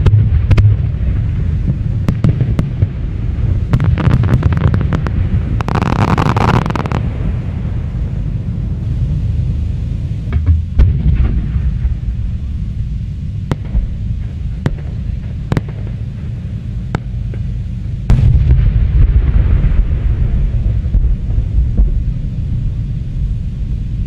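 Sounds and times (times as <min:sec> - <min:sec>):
heavy low rumble: 0:00.0 - 0:24.0
firework shells bursting: 0:03.7 - 0:07.2, 0:13.5 - 0:17.5.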